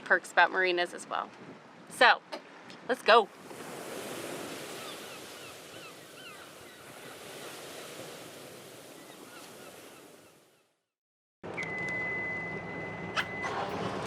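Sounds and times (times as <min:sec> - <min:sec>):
wind: 0:00.0 - 0:14.0
high bird calls: 0:04.7 - 0:07.2.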